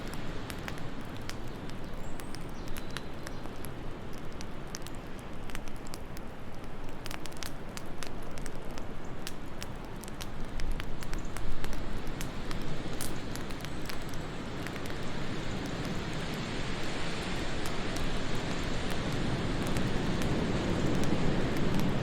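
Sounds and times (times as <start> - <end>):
wood fire crackling and popping: 0.0 - 22.0
low rush of wind: 9.8 - 22.0.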